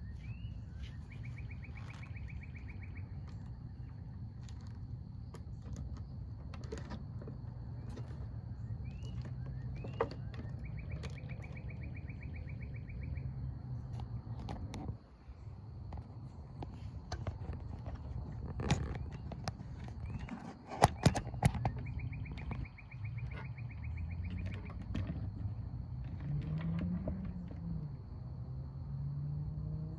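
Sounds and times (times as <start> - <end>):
bird calls: 0.0 - 6.1, 6.7 - 26.6.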